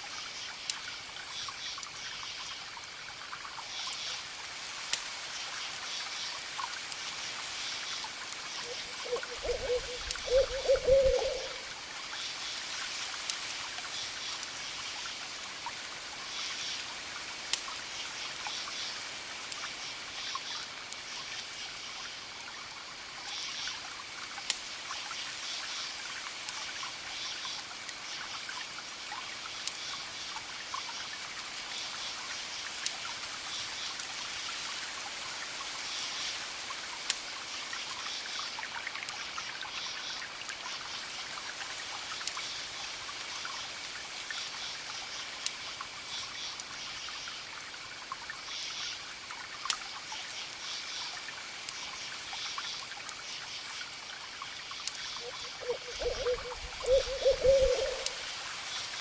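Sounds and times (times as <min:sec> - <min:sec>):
campfire crackling: 0:00.2 - 0:59.0
crickets chirping: 0:07.5 - 0:12.6, 0:42.2 - 0:59.0.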